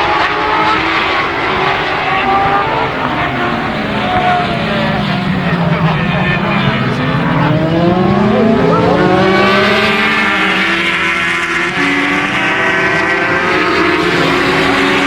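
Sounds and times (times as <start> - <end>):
racing motorcycles accelerating: 0.0 - 15.0.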